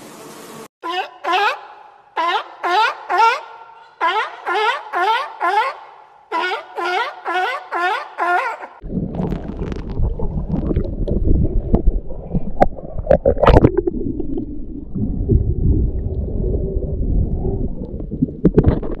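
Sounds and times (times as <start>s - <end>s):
seal barking: 0.8s - 8.8s
underwater rumble and gurgle: 8.8s - 19.0s.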